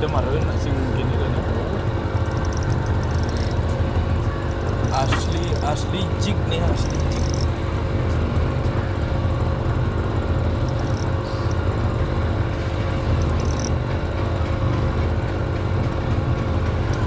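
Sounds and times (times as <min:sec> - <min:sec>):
motor humming: 0:00.0 - 0:17.0
faint high rattles: 0:02.0 - 0:07.6, 0:10.6 - 0:11.7, 0:13.1 - 0:13.8.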